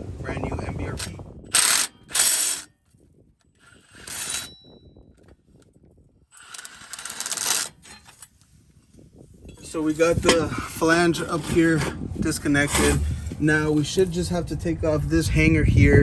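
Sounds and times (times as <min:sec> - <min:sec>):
metal tool scraping rattle: 0:01.0 - 0:02.7, 0:03.6 - 0:05.0, 0:06.3 - 0:08.4, 0:09.5 - 0:14.1.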